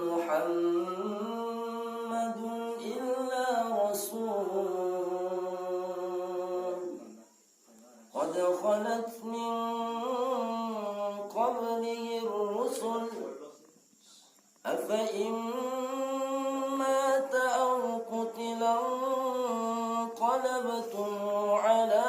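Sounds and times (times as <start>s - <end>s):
man chanting melodic recitation: 8.1s - 13.5s, 14.7s - 22.0s.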